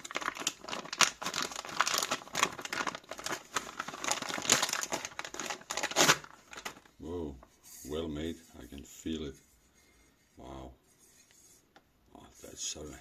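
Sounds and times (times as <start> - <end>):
packaging crinkling: 0.0 - 7.0.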